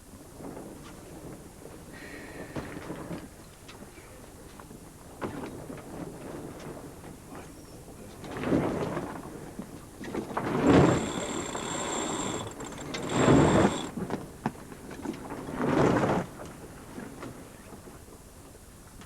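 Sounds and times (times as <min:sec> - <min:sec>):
water surging along hull: 0:08.2 - 0:17.4.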